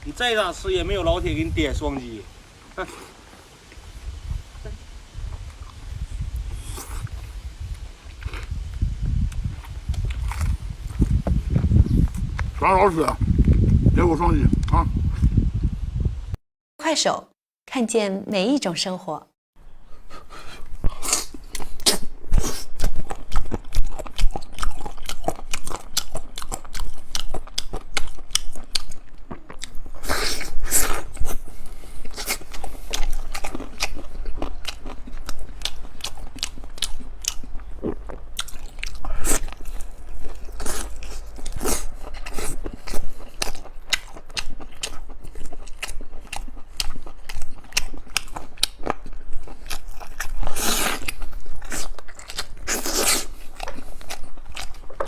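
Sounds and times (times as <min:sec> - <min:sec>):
person chewing crunchy food: 0:05.2 - 0:12.5, 0:19.9 - 0:55.0.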